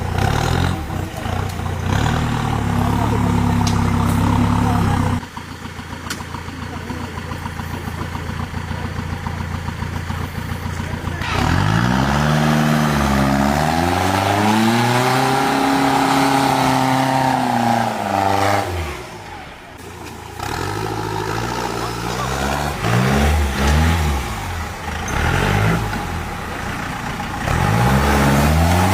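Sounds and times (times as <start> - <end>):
engine revving: 0.0 - 5.2, 6.1 - 28.9.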